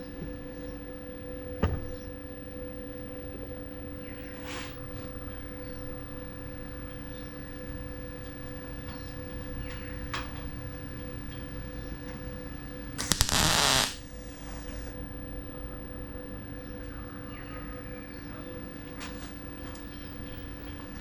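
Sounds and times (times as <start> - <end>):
background hum: 0.0 - 21.0
welder crackling burst: 13.0 - 14.1.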